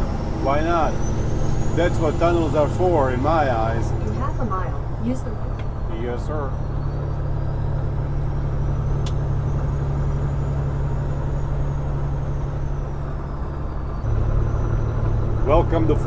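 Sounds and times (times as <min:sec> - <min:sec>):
diesel truck engine running: 0:00.0 - 0:16.0
click: 0:09.0 - 0:09.2.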